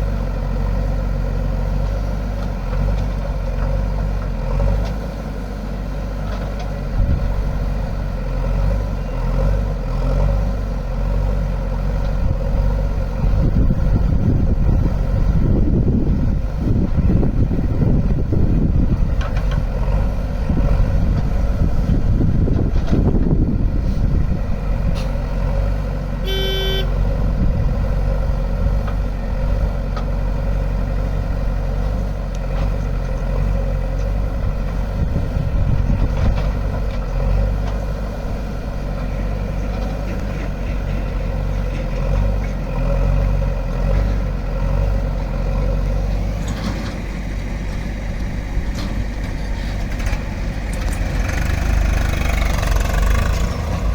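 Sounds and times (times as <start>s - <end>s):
heavy diesel engines running: 0.0s - 53.9s
short horn toot: 26.2s - 27.0s.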